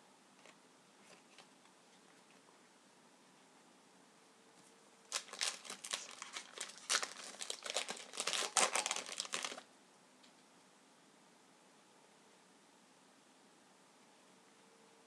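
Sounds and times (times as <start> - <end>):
wrapper crinkling and tearing: 5.1 - 9.7.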